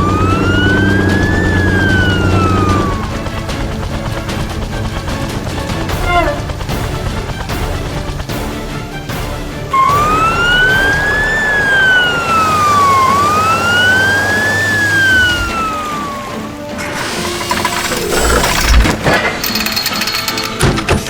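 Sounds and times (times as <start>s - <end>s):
emergency vehicle siren wailing: 0.0s - 6.8s, 9.7s - 18.7s
background music: 0.0s - 21.0s.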